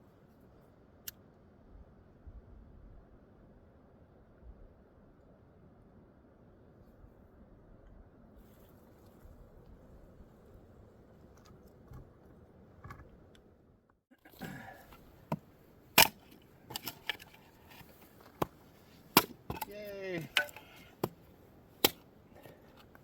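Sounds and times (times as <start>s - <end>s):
kindling being chopped: 15.3s - 21.2s, 21.8s - 22.0s.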